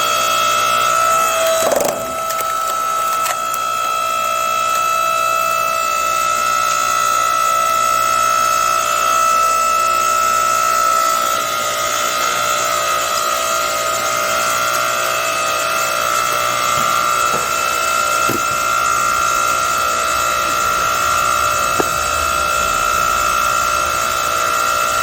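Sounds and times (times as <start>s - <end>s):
log splitter motor whine: 0.0s - 25.0s
firewood cracking: 1.6s - 3.9s, 16.3s - 19.3s.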